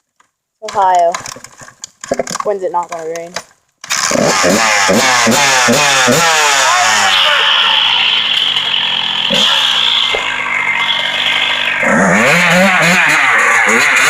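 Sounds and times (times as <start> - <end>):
dirt bike engine revving: 3.9 - 14.0.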